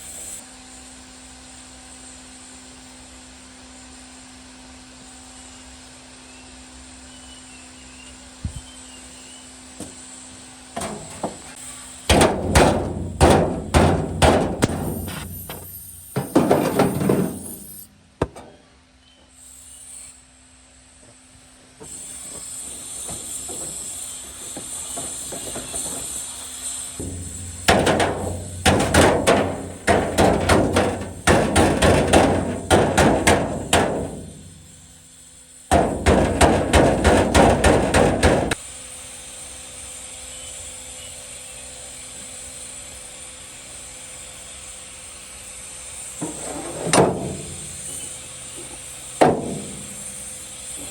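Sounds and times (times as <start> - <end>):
hammer blows on sheet metal: 10.8 - 17.9, 27.0 - 35.0, 35.7 - 38.6, 46.2 - 50.9.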